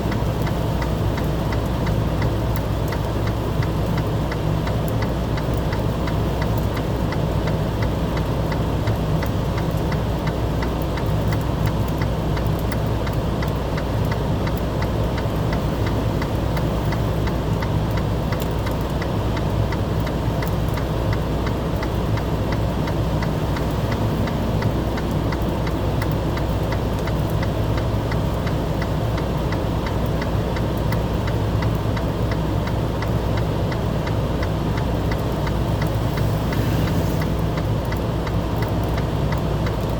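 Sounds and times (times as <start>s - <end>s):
fast light ticking: 0.0s - 39.9s
engine idling: 13.4s - 29.0s.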